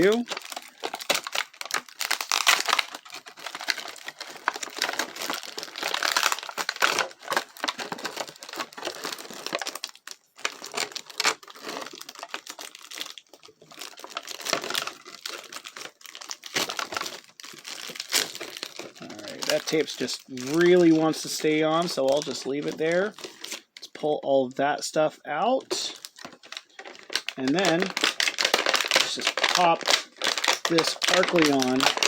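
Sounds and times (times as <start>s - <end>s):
packaging tearing: 0.0s - 23.9s, 25.6s - 32.0s
packaging crinkling and rustling: 0.0s - 24.1s, 25.5s - 32.0s.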